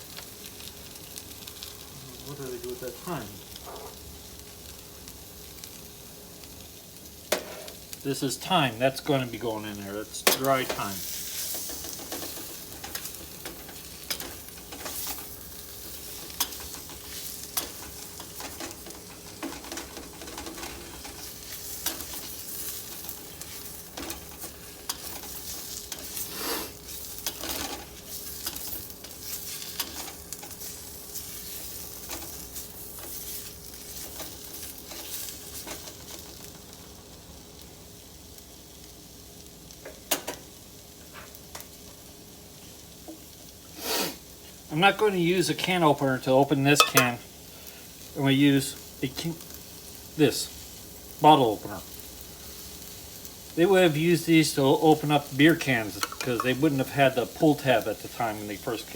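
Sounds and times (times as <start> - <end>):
onions sizzling in a pan: 0.0 - 58.9
utensil scraping a pan: 10.6 - 33.4.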